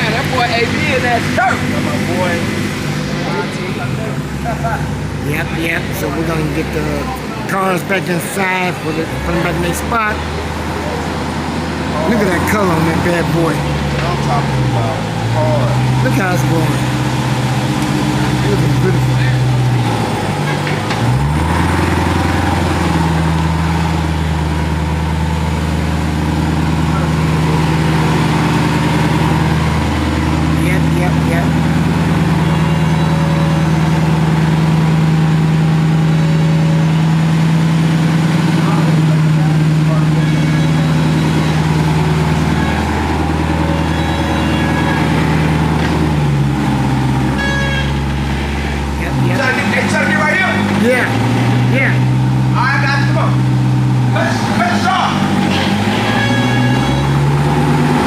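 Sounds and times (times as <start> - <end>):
car engine running: 0.0 - 58.0.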